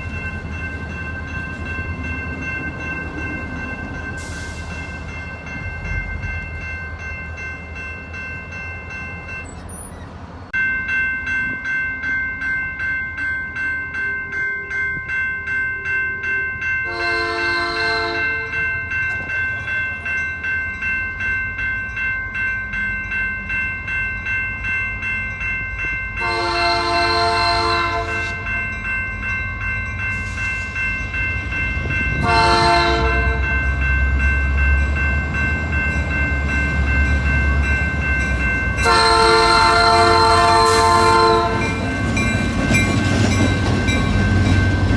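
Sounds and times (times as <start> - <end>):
railway crossing bell ringing: 0.0 - 44.9
locomotive horn blasts: 16.8 - 18.6, 26.2 - 28.5, 32.2 - 33.6, 38.8 - 41.8
locomotive engine rumble: 30.0 - 44.9.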